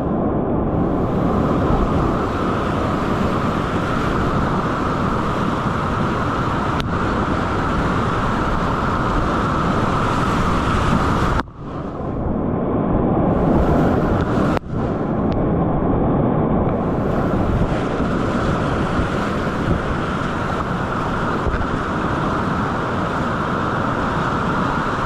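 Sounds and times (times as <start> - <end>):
river rapids rushing: 0.8 - 12.0, 16.8 - 25.0.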